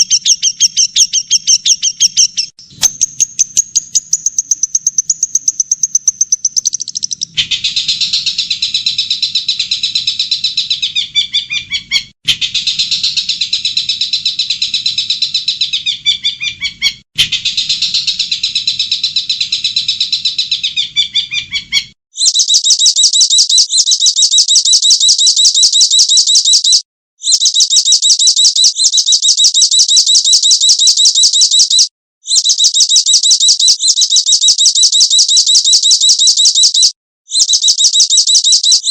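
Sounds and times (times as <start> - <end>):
songbird chattering warble: 0.0 - 8.3
fast high bird trill: 0.0 - 8.4.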